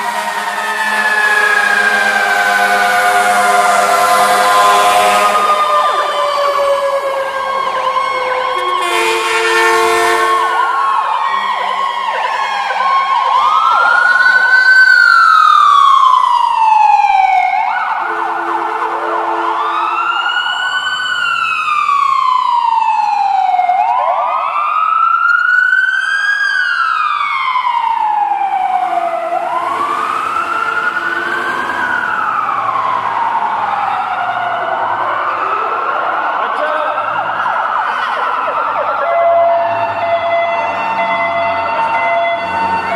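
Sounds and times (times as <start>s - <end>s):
fire engine siren wailing: 0.0s - 42.9s
second siren: 0.0s - 42.9s.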